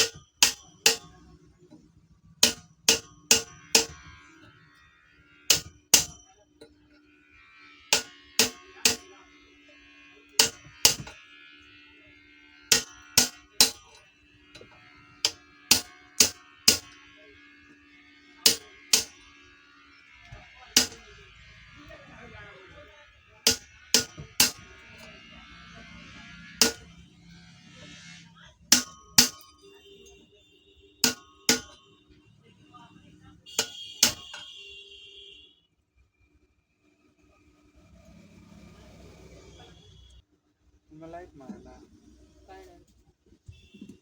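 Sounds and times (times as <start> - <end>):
hammer striking metal: 0.0 - 4.6, 5.4 - 7.0, 7.9 - 9.3, 10.3 - 11.3, 12.7 - 17.2, 18.4 - 19.3, 20.2 - 29.7, 31.0 - 31.9, 33.5 - 34.6.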